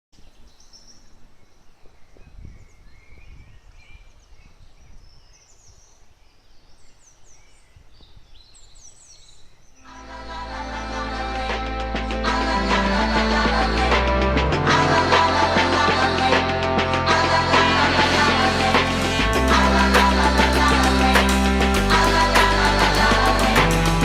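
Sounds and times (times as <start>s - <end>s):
music: 9.9s - 24.0s.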